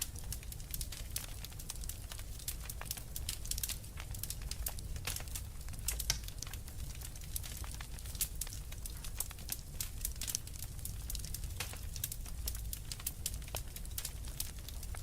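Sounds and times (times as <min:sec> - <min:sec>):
low fire rumble: 0:00.0 - 0:15.0
wood fire crackling and popping: 0:00.0 - 0:15.0.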